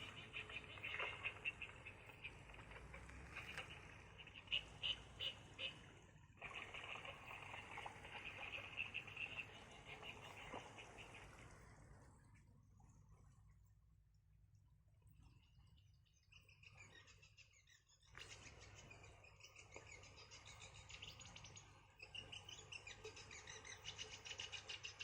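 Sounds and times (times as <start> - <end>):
animals calling with clicking trills: 0.0 - 10.7.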